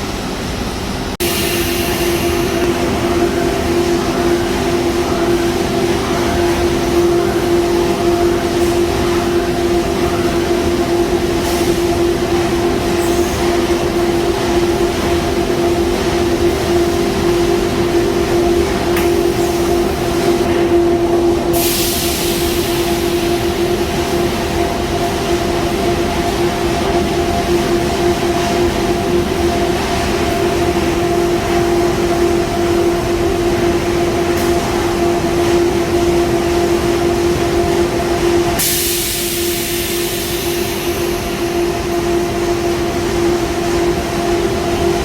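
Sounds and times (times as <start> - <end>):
conveyor machine hum: 0.0 - 45.0
burst of hiss: 1.2 - 2.6.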